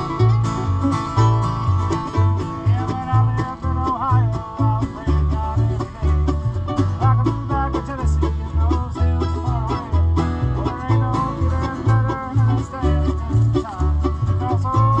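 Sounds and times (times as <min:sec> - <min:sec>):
acoustic guitar: 0:00.0 - 0:15.0
banjo: 0:00.0 - 0:15.0
bass line: 0:00.0 - 0:15.0.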